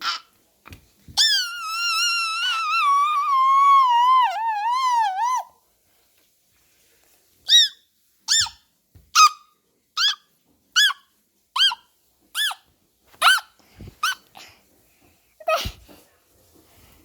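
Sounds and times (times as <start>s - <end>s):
puppy whining: 1.1s - 5.6s, 7.5s - 8.6s, 11.6s - 11.8s, 12.4s - 14.3s.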